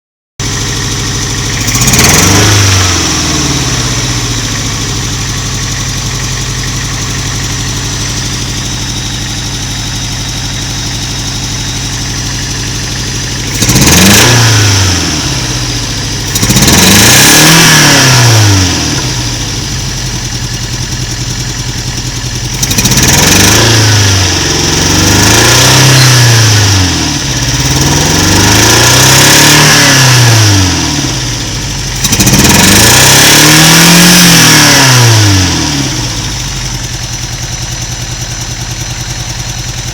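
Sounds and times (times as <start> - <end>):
car engine idling and revving: 0.4 - 39.9.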